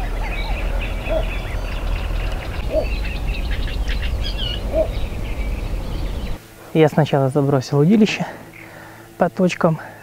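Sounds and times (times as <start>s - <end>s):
low rumble: 0.0s - 6.4s
lower bird call: 0.0s - 6.4s
small birds chirping: 0.0s - 10.0s.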